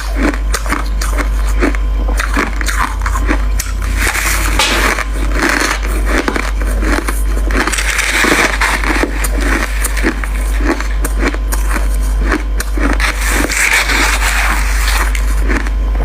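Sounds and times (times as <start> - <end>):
chewing crushed ice: 0.0 - 16.0
steady low hum: 0.0 - 16.0.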